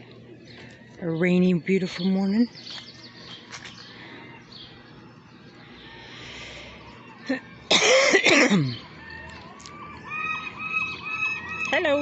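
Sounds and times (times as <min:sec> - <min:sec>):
person coughing: 0:07.7 - 0:08.8.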